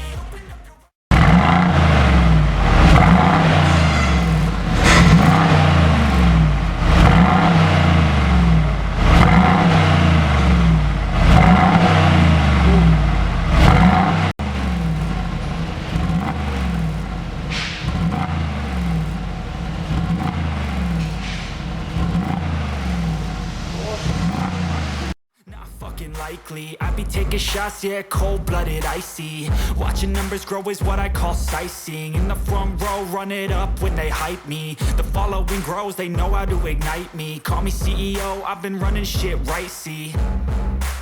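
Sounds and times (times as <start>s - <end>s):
car engine revving: 1.1s - 25.2s.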